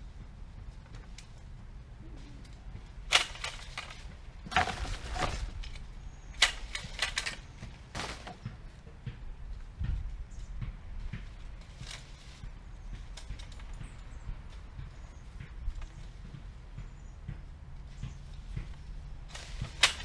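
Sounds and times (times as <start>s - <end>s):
twigs and leaves crackling: 2.1s - 8.8s, 18.0s - 20.0s
tree branches snapping: 3.1s - 5.8s, 19.3s - 20.0s.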